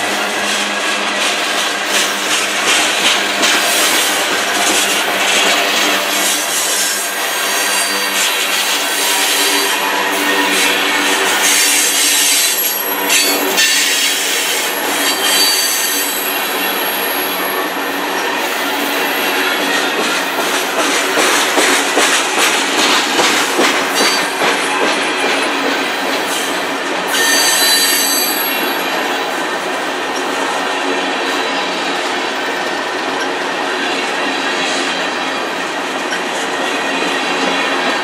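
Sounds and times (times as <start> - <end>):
steel wheels rolling on rail: 0.0 - 38.0
high-pitched wheel squeal: 14.9 - 17.2, 27.1 - 28.7.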